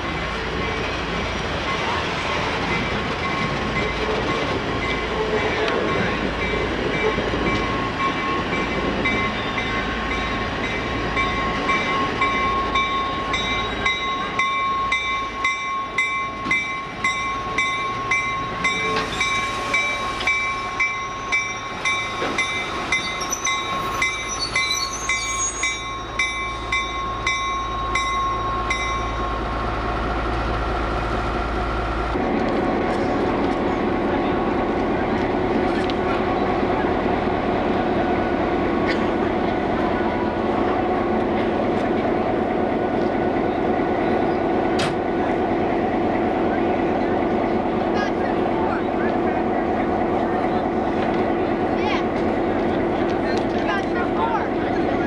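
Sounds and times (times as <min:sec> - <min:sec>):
train running: 0:00.0 - 0:55.0
bell ringing: 0:11.2 - 0:29.3.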